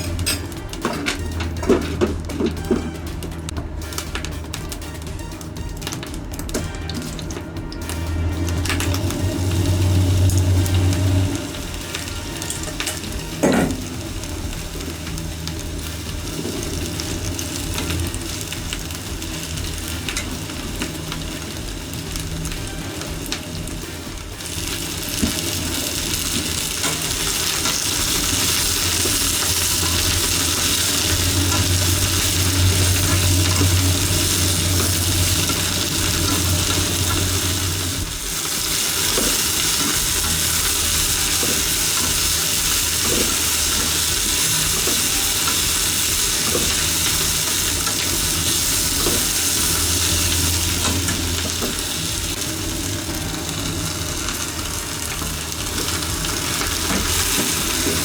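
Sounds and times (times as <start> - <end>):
food sizzling in a pan: 0.0 - 58.0
utensil knocking on pan: 11.6 - 37.6.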